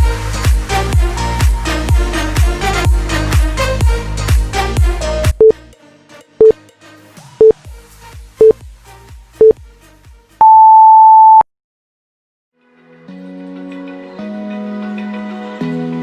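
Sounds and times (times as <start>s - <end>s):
background music: 0.0s - 10.5s, 12.6s - 16.0s
timer beeps: 10.4s - 11.4s
long high beep: 10.4s - 11.5s.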